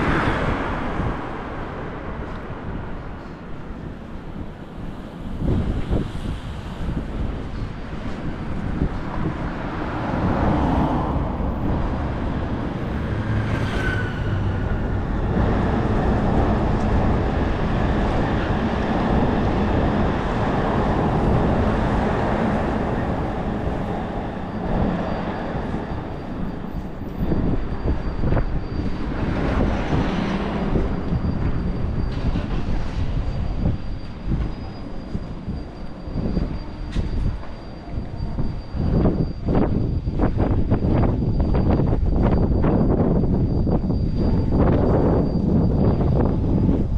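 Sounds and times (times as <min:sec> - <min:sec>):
low rumble of city noise: 0:00.0 - 0:46.9
wind buffeting microphone: 0:00.0 - 0:46.9
faint high whine: 0:10.3 - 0:46.9.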